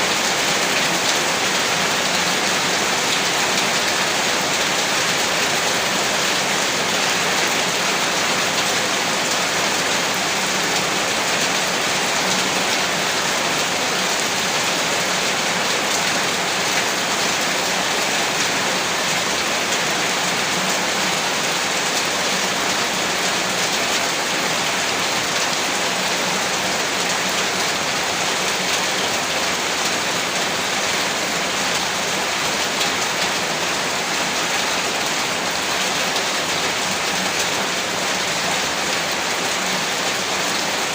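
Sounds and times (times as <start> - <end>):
heavy rain on surfaces: 0.0 - 40.9.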